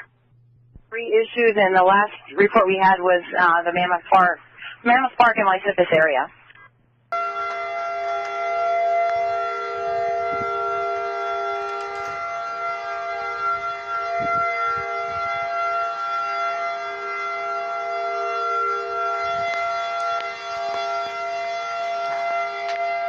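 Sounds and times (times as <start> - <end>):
tornado warning siren steady tone: 7.1 - 23.0.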